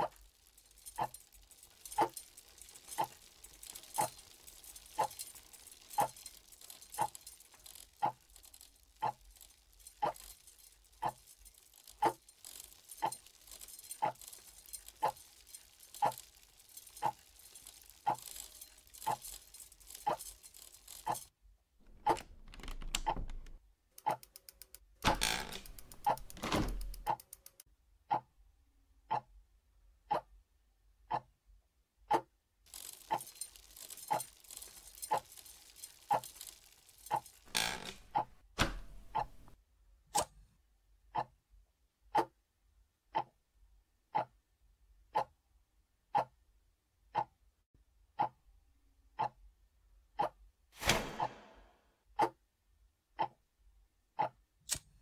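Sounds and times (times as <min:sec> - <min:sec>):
clock ticking: 0:00.0 - 0:21.3, 0:21.9 - 0:28.4, 0:29.0 - 0:29.4, 0:30.0 - 0:30.4, 0:31.0 - 0:31.4, 0:41.1 - 0:41.4, 0:43.1 - 0:43.4, 0:44.1 - 0:44.4, 0:46.1 - 0:46.4, 0:47.1 - 0:47.4, 0:48.2 - 0:48.5, 0:49.1 - 0:49.4
rattling jangling noise: 0:00.0 - 0:21.3, 0:32.7 - 0:39.6.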